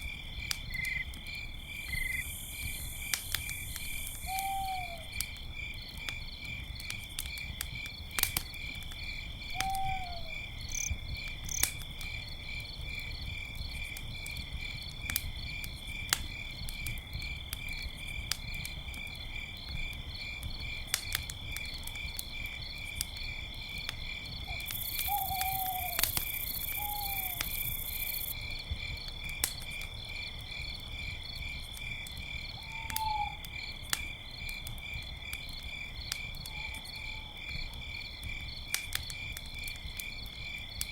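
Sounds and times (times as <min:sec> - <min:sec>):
campfire crackling and popping: 0:00.0 - 0:40.9
crickets chirping: 0:00.0 - 0:40.9
owl hoots: 0:04.2 - 0:05.1, 0:09.5 - 0:10.4, 0:24.5 - 0:26.1, 0:26.7 - 0:27.5, 0:32.6 - 0:33.4.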